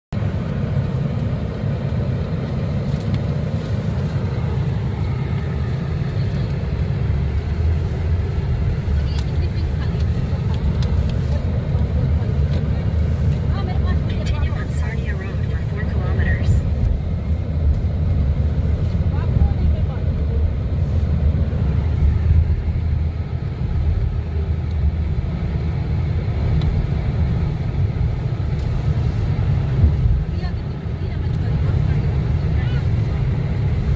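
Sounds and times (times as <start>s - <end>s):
car driving rumble: 0.1s - 33.9s.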